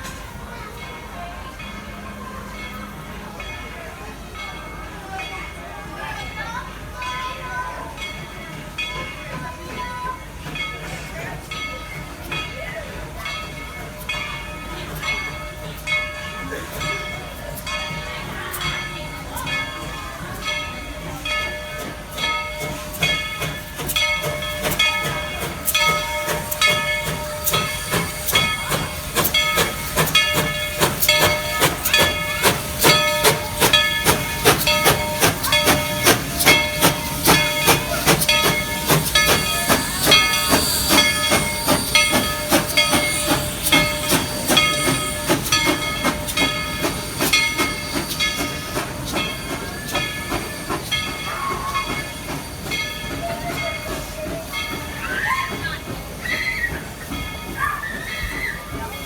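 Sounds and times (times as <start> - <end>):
steam locomotive chuffing: 0.0 - 59.0
steam hissing: 5.8 - 59.0
steady ringing tones: 13.3 - 55.6.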